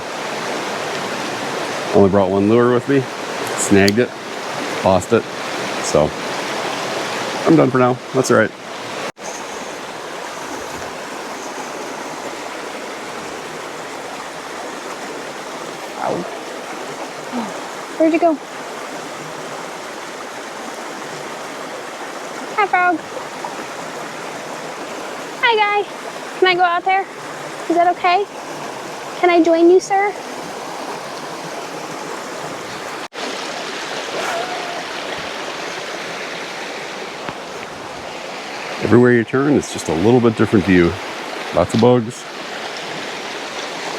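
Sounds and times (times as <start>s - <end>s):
flowing water rushing: 0.0s - 43.9s.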